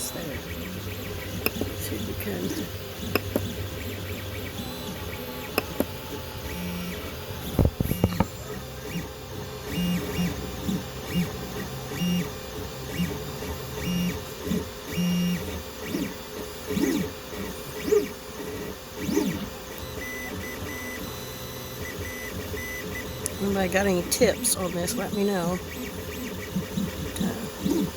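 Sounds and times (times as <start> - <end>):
printer stepper motors whirring: 0.0 - 27.9
sharp clicks: 3.0 - 3.5.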